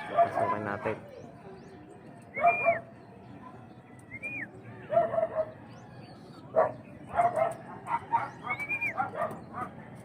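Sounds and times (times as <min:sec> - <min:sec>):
dog barking: 0:00.0 - 0:00.8, 0:04.9 - 0:05.6, 0:06.5 - 0:09.8.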